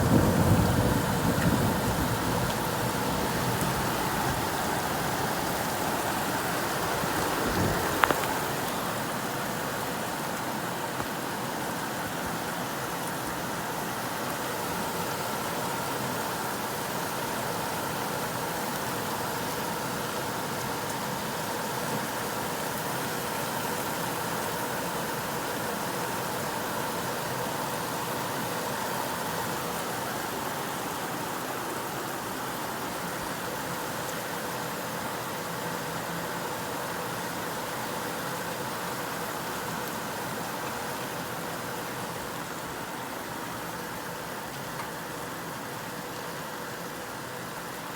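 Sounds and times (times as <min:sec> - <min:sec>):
low rumble of thunder: 0:00.0 - 0:05.8
steady rain falling: 0:00.0 - 0:47.9.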